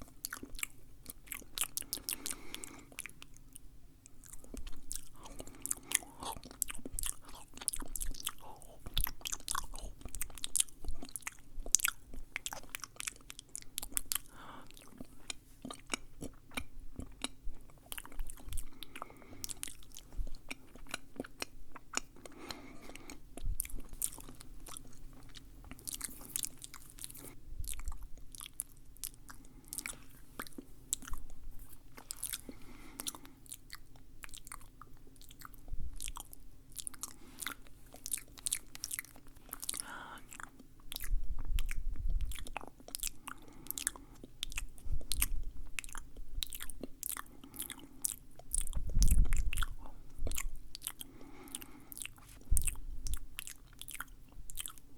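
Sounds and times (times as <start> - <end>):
faint low hum: 0.0 - 54.9
wet mouth clicks and smacks: 48.1 - 51.0.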